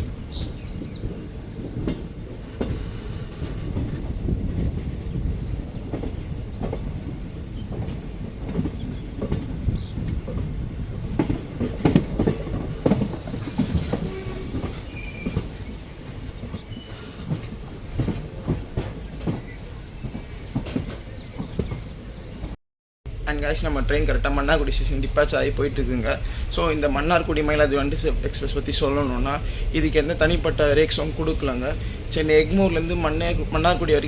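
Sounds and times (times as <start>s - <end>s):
train low rumble: 0.0s - 34.0s
wheels clacking over rail joints: 0.3s - 22.6s.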